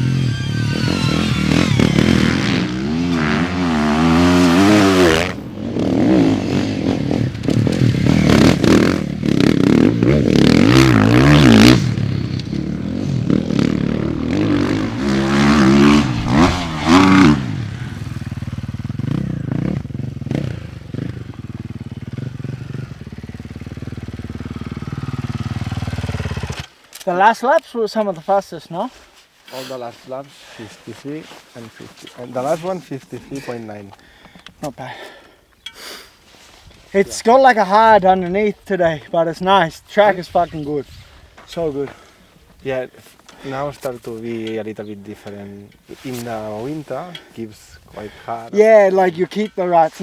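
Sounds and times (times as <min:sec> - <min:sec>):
motocross bike engine revving: 0:00.0 - 0:26.7.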